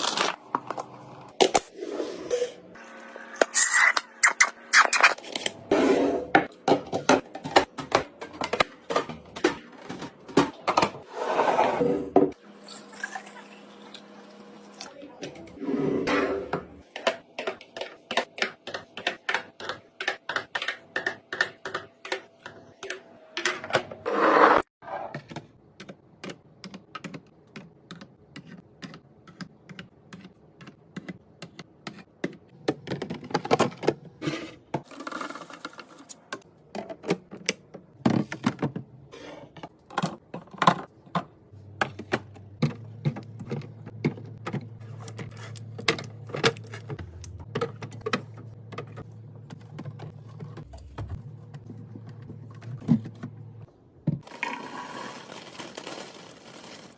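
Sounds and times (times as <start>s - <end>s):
packaging rustling: 54.9s - 56.9s.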